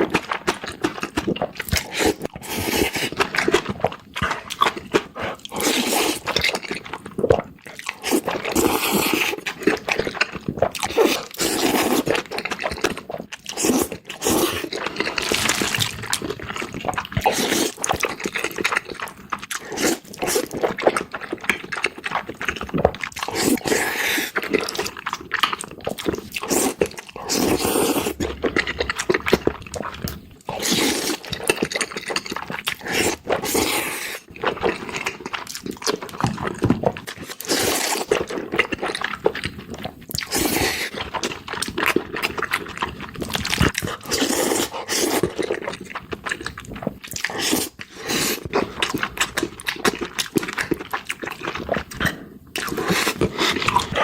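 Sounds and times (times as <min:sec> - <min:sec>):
wet chewing: 0:00.0 - 0:54.0
noodle slurping: 0:08.0 - 0:12.6, 0:13.4 - 0:21.7, 0:23.2 - 0:35.2, 0:41.9 - 0:45.8, 0:47.1 - 0:54.0
crunchy bites: 0:13.8 - 0:19.7.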